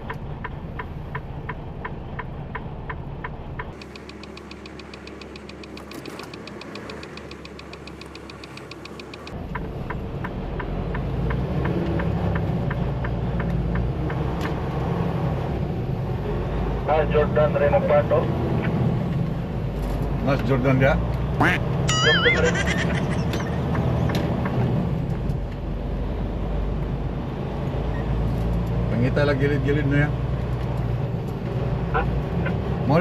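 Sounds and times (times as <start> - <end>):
turn signal clicking: 0.0 - 14.6
diesel truck engine running: 0.0 - 27.9
fast high ticking: 3.8 - 9.4.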